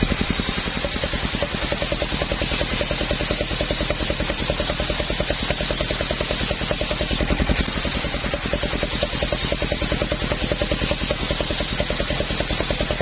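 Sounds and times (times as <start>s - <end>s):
saw engine chugging: 0.0s - 13.0s.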